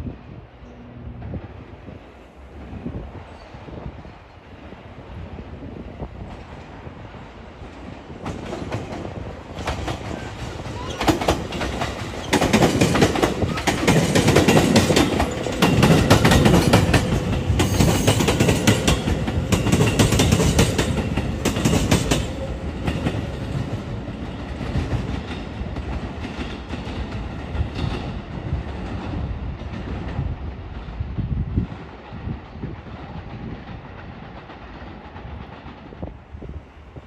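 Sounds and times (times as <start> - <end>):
train wheels clacking on rails: 7.6 - 31.0.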